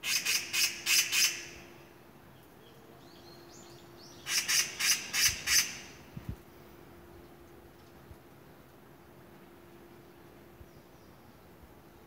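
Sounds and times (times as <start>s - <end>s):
bird harsh rasping calls: 0.0s - 1.6s, 4.2s - 6.0s.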